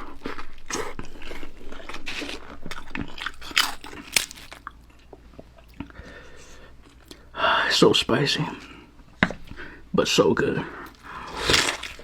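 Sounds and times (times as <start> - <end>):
crunchy biting and chewing: 0.0 - 5.1, 10.9 - 12.0.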